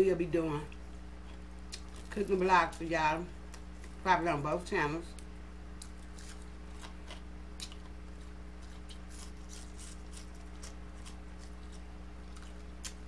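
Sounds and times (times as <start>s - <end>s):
steady low hum: 0.0s - 13.0s
crisp chewing and mouth smacks: 0.7s - 2.2s, 5.1s - 13.0s.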